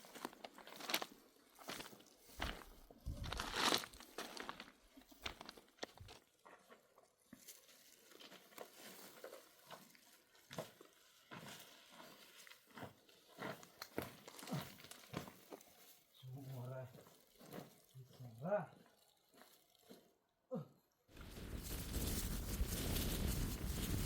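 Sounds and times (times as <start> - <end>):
faint crunches and clicks: 3.0 - 7.1.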